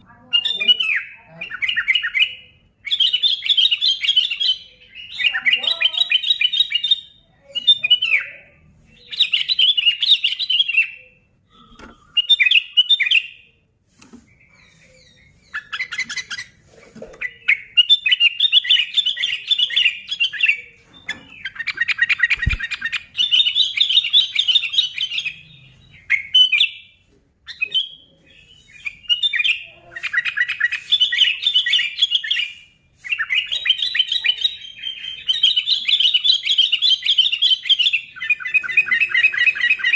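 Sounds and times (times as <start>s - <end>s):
bulbul singing: 14.2s - 39.9s.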